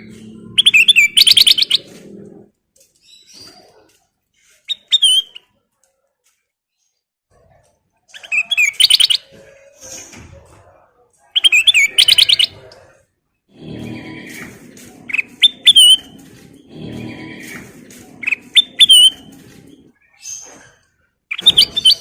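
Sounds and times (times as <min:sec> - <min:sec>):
bird calls: 0:00.0 - 0:02.4, 0:11.4 - 0:12.7, 0:13.6 - 0:22.0
bird chirping: 0:00.0 - 0:02.4, 0:08.1 - 0:10.1, 0:11.4 - 0:12.9, 0:13.5 - 0:22.0.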